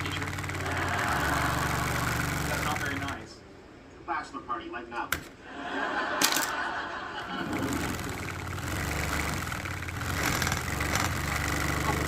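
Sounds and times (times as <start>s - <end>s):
engine humming with high buzz: 0.0s - 3.2s, 7.5s - 12.0s.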